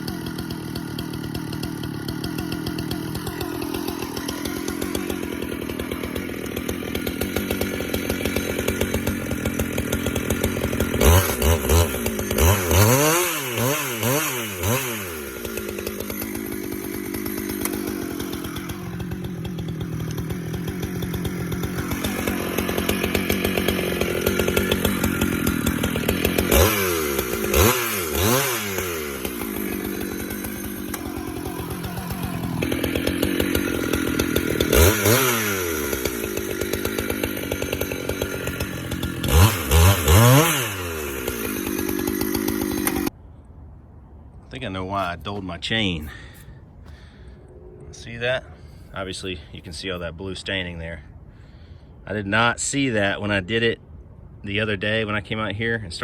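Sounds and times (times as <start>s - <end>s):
chainsaw cutting wood: 0.0s - 43.2s.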